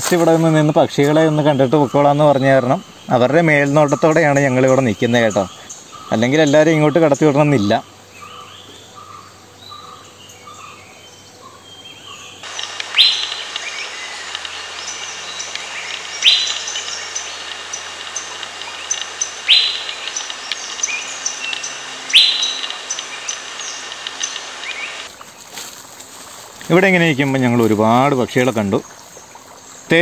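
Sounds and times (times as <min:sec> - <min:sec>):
faint high bird chirps: 0:11.4 - 0:25.1
loud sharp bird call: 0:12.4 - 0:25.1.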